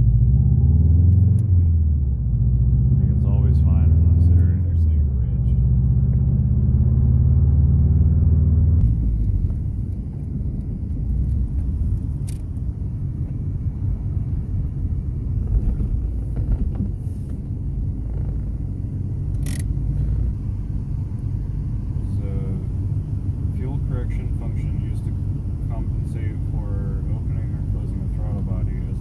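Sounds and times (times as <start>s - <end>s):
car engine drone from cabin: 0.0s - 29.0s
sharp click: 19.3s - 19.7s.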